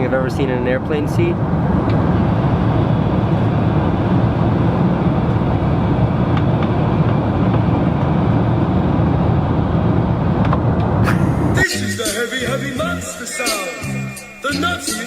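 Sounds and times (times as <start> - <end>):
airliner cabin rumble: 0.0 - 11.9.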